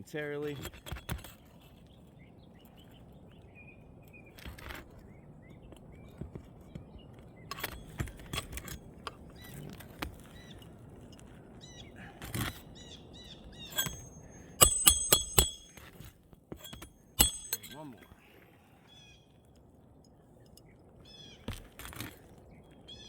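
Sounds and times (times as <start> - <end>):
birds chirping: 0.0 - 15.8, 16.6 - 23.0
hatchet driving nails: 7.5 - 8.8, 13.7 - 17.8
loud ringing metal strikes: 13.8 - 15.8, 16.6 - 17.9.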